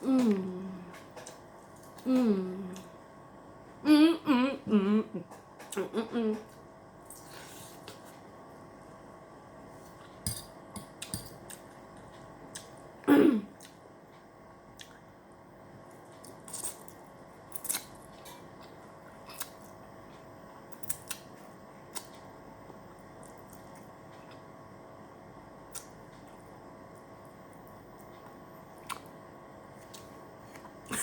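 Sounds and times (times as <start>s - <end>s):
chewing and mouth smacking: 28.0s - 29.1s.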